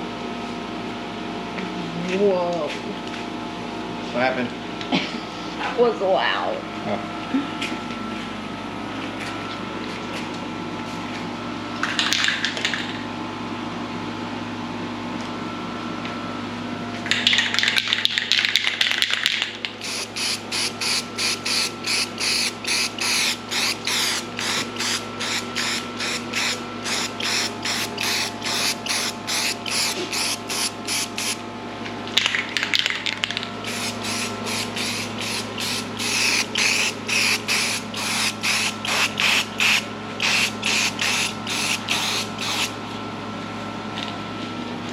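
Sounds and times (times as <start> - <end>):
machine hum: 19.6 - 44.9
compressed air gun hissing: 19.8 - 31.4, 33.6 - 42.7.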